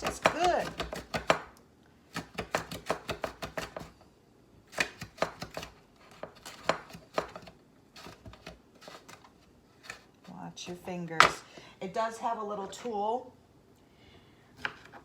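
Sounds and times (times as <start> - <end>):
cucumber slicing on mandoline: 4.7 - 9.2.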